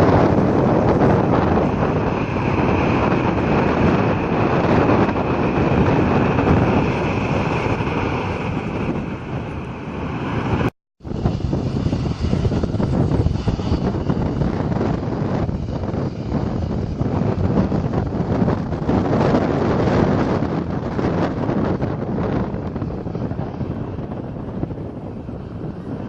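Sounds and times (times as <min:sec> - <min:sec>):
jet engines with high whine: 0:00.0 - 0:26.0
wind buffeting microphone: 0:00.0 - 0:26.0.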